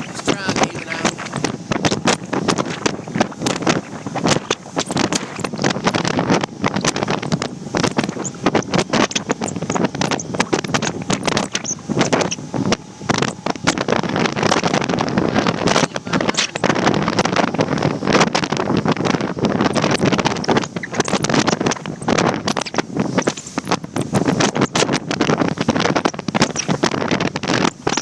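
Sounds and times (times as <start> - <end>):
wind buffeting microphone: 0.0 - 28.0
sharp crackles: 18.1 - 28.0.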